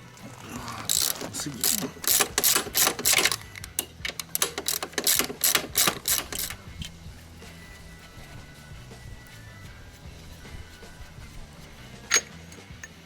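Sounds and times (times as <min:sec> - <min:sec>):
ratchet wrench clicking: 0:00.9 - 0:07.0.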